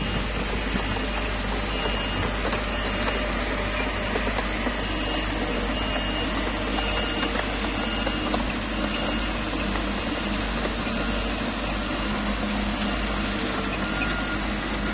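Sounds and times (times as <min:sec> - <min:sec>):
bulldozer diesel engine running: 0:00.0 - 0:14.9
clatter of tracks and stone: 0:00.0 - 0:14.9.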